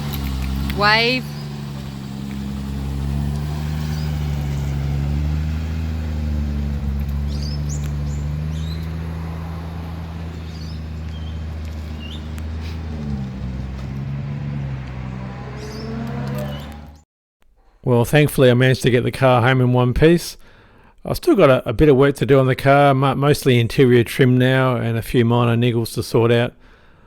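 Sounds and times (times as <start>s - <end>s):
car engine running: 0.0s - 17.0s
birds chirping faintly: 0.3s - 13.8s, 14.4s - 17.0s.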